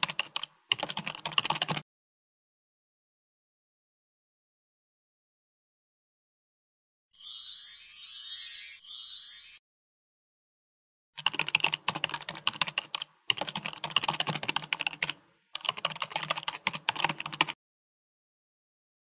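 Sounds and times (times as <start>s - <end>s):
music: 7.1s - 9.6s.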